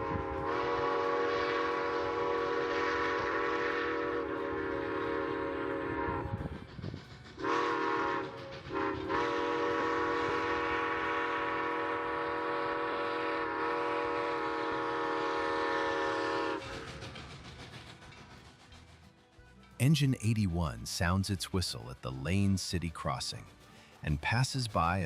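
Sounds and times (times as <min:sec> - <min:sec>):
steam whistle blasts: 0:00.0 - 0:06.6, 0:07.4 - 0:16.7
train rumbling: 0:00.0 - 0:25.0.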